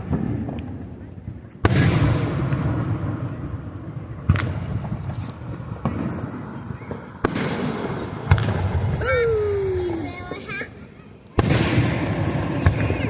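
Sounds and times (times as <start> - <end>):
fireworks banging: 0.0 - 13.0
faint firework pops: 4.3 - 6.2, 6.8 - 8.8.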